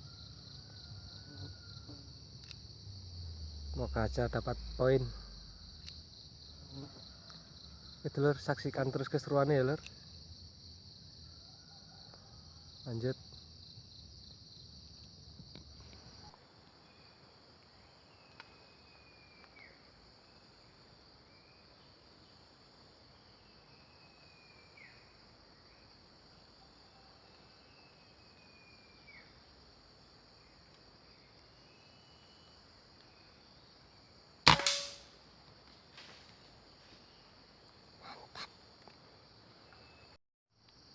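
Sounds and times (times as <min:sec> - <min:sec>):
high insect hum: 0:00.0 - 0:40.9
gunshot: 0:34.5 - 0:35.1.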